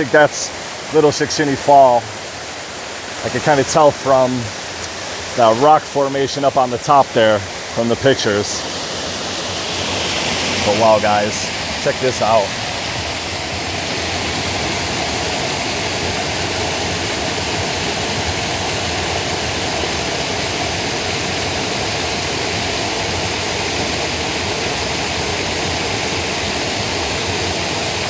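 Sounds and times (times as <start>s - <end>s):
water pouring over waterfall: 0.0s - 28.0s.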